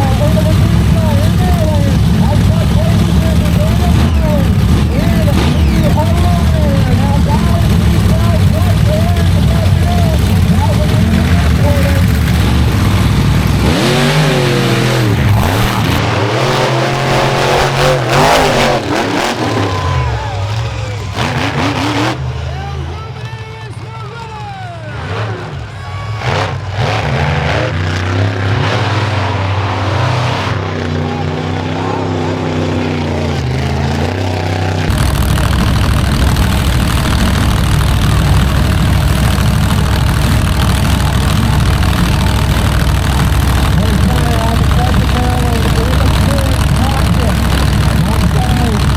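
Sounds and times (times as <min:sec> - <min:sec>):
monster truck engine revving: 0:00.0 - 0:48.9
steady low drone: 0:27.6 - 0:48.9.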